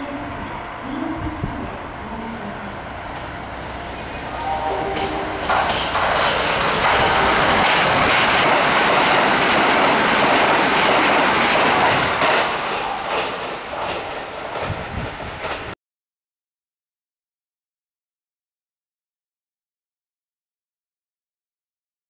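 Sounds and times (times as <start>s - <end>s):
train wheels rushing on rail: 0.0s - 15.8s.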